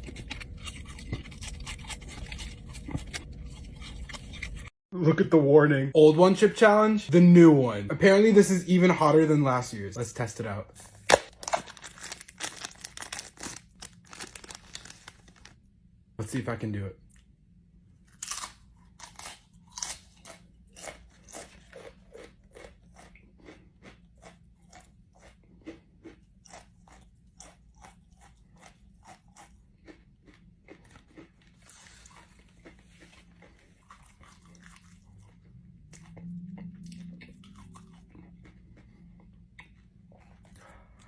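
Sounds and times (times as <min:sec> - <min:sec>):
person chewing crunchy chip: 0:00.0 - 0:04.7, 0:10.8 - 0:15.6, 0:18.1 - 0:41.0.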